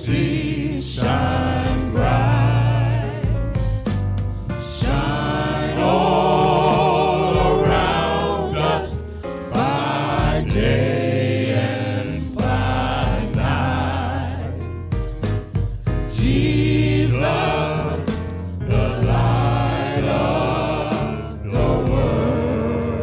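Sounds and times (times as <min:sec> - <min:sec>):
voices singing gospel: 0:00.0 - 0:15.0, 0:16.0 - 0:23.0
steady low bass: 0:00.0 - 0:23.0.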